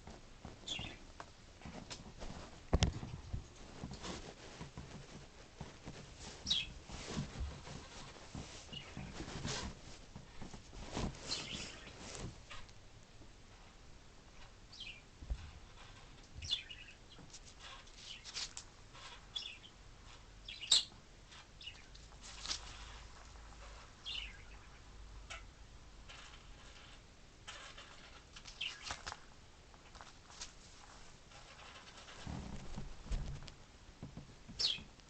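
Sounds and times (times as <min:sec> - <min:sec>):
faint bird chirps: 0:00.6 - 0:01.0, 0:06.5 - 0:06.7, 0:14.4 - 0:22.0, 0:22.7 - 0:25.5, 0:26.1 - 0:29.1, 0:34.6 - 0:34.9.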